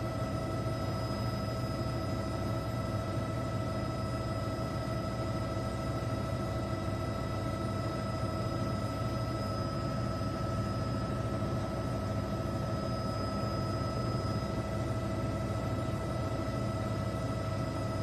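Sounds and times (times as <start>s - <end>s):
mechanical drone with whining tones: 0.0s - 18.0s.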